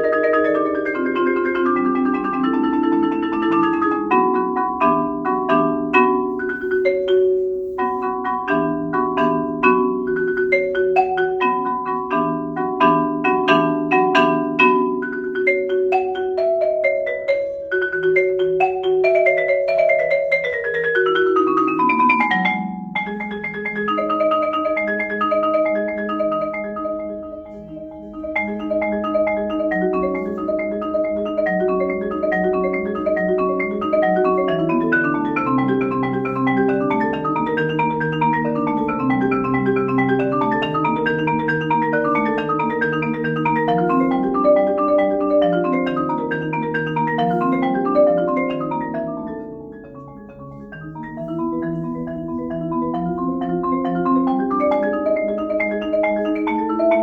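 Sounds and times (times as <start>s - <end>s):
marimba played with mallets: 0.0s - 57.0s.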